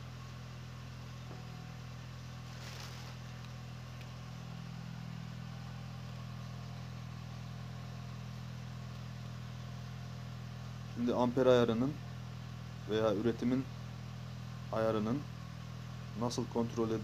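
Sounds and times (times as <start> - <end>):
car engine idling: 0.0 - 17.0
brief rustle: 2.4 - 3.6.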